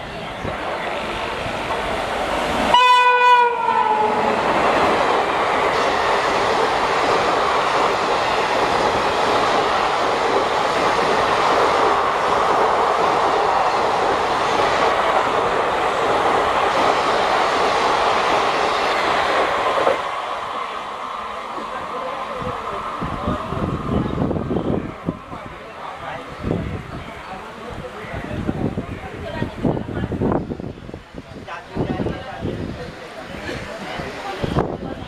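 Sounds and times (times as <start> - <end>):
train coaches rushing past: 0.0 - 35.0
train horn blast: 2.7 - 4.4.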